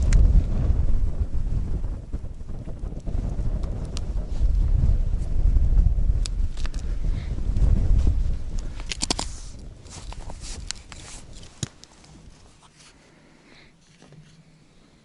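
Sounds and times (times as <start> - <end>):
wind buffeting microphone: 0.0 - 12.7
handling clicks and crackles: 6.2 - 6.9, 8.5 - 13.0, 13.8 - 14.4.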